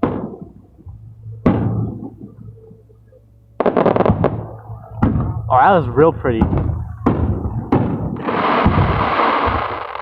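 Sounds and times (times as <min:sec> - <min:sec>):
firework boom: 0:03.6 - 0:05.5, 0:06.3 - 0:10.0
firework crackling: 0:03.6 - 0:05.5, 0:06.4 - 0:10.0.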